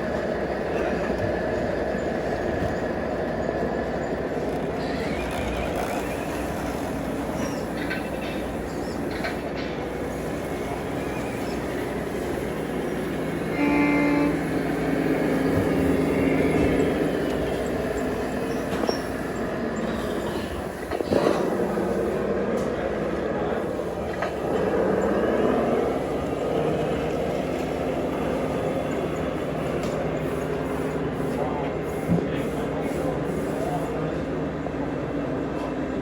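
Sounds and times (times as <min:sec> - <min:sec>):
toy trucks mechanical noise: 0:04.1 - 0:09.4
horn blast: 0:13.5 - 0:14.6.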